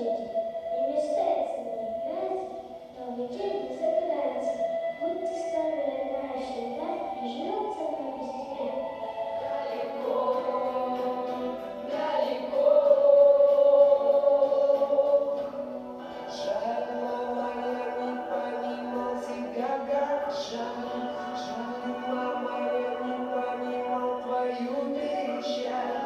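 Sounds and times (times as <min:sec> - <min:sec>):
choir singing slow song: 0:06.4 - 0:26.0.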